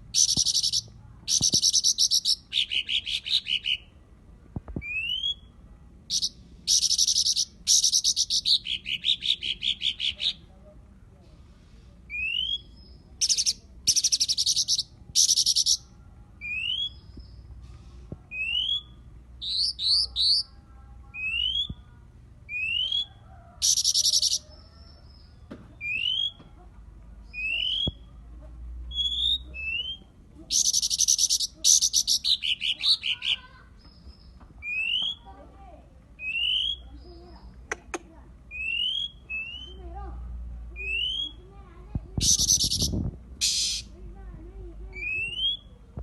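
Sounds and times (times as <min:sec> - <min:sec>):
bird whistled calls: 0:00.2 - 0:03.8, 0:06.1 - 0:10.2, 0:18.3 - 0:20.5, 0:27.3 - 0:28.0, 0:28.9 - 0:33.2, 0:34.6 - 0:35.3, 0:36.2 - 0:37.0, 0:38.5 - 0:39.8, 0:40.8 - 0:41.4, 0:42.2 - 0:43.9, 0:45.0 - 0:45.8
harsh buzzing bird bursts: 0:42.2 - 0:43.9.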